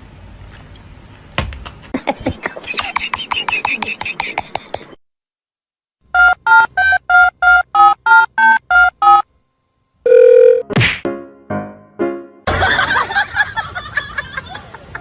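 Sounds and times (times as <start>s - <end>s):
held tone: 10.1s - 10.6s.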